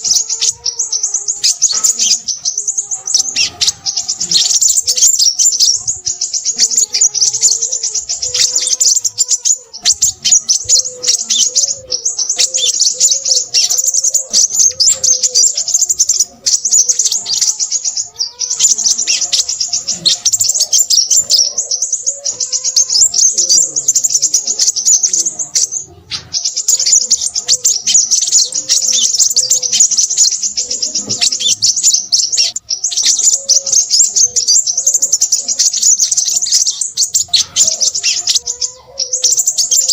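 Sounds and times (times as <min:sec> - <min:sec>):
bird singing rapid chattering trills: 0:00.0 - 0:39.9.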